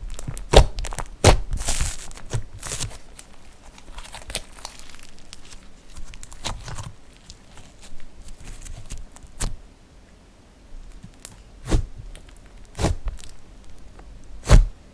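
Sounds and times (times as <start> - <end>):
slime crackling: 0.0 - 9.6, 10.8 - 14.7
slime popping and snapping: 0.1 - 3.0, 11.0 - 13.8.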